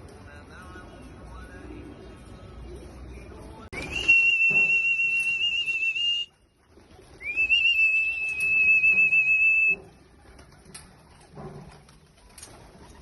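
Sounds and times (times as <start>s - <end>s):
high-pitched whistle: 3.8s - 6.3s, 7.3s - 9.8s.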